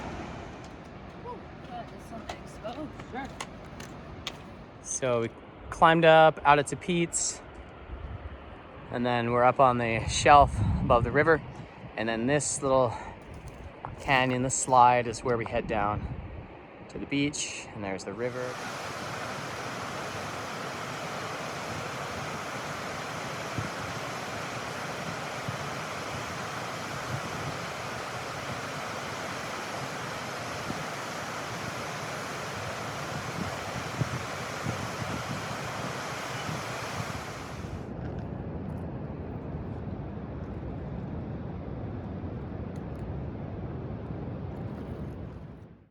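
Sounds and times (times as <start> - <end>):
river water rushing: 0.0 - 2.9, 18.2 - 37.8
wind on microphone: 0.0 - 17.4, 18.1 - 45.9.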